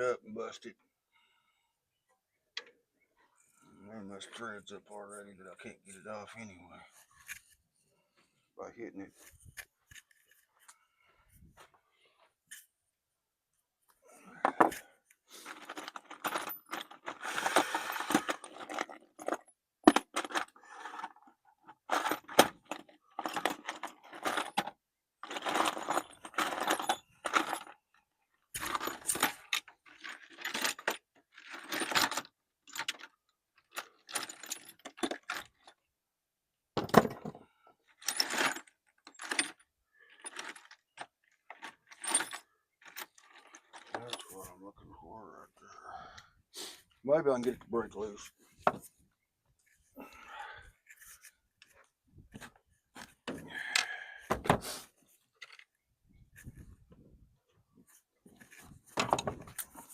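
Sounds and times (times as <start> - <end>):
metal tools clinking: 14.3 - 21.2, 41.5 - 44.5, 58.4 - 59.9.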